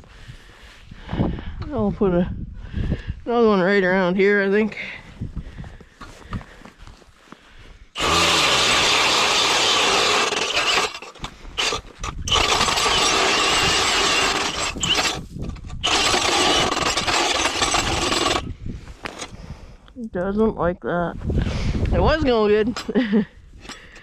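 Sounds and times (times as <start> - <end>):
electric ice auger drilling ice: 8.0 - 19.3.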